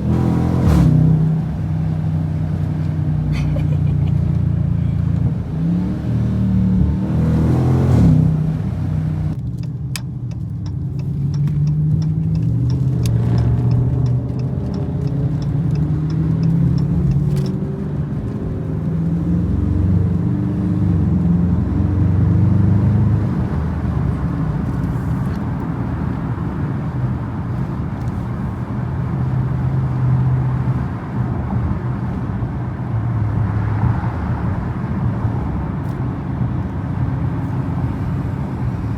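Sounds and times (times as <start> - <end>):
car engine cruising: 0.0 - 38.9
regular light ticks: 9.6 - 17.6.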